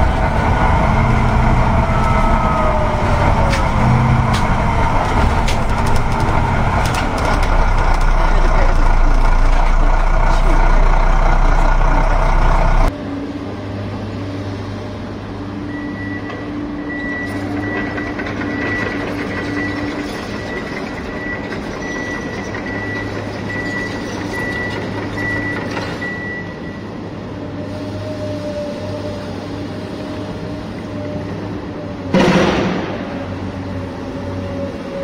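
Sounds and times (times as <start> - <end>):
heavy vehicle engine running: 0.0 - 35.0
reversing alarm beeping: 15.7 - 27.0.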